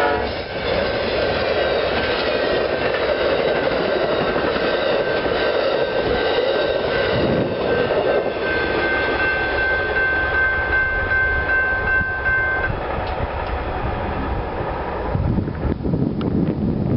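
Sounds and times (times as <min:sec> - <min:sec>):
train cars rushing rail noise: 0:00.0 - 0:16.9
high wheel squeal: 0:00.3 - 0:10.2.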